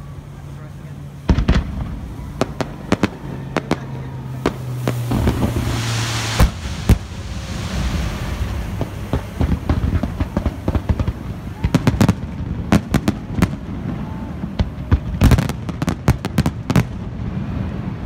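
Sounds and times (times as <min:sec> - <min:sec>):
low hum: 0:00.0 - 0:11.7
fireworks bangs: 0:00.0 - 0:18.0
fireworks hissing crackle: 0:00.0 - 0:18.0.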